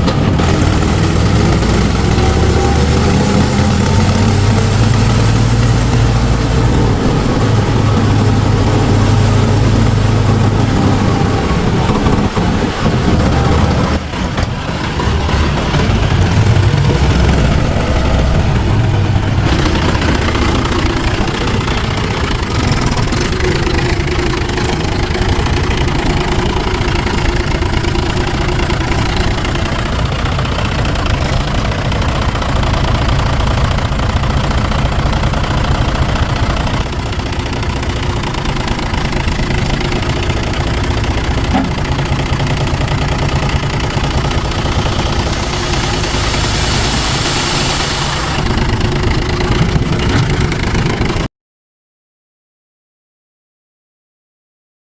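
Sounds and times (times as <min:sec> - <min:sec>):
diesel engine running at low revs: 0:00.0 - 0:51.3.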